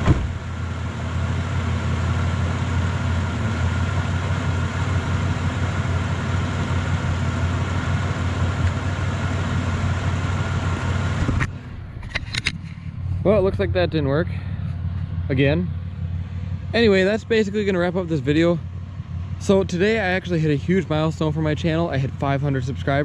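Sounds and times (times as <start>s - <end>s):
car engine idling through exhaust: 0.0s - 23.0s.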